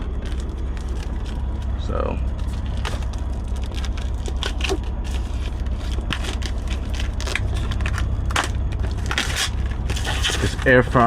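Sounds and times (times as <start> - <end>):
packaging crinkling: 0.0 - 10.8
steady low rumble: 0.0 - 11.0.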